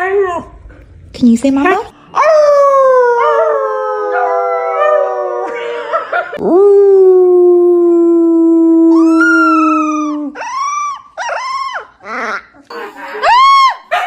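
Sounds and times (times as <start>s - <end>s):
dog howling: 2.1s - 12.4s.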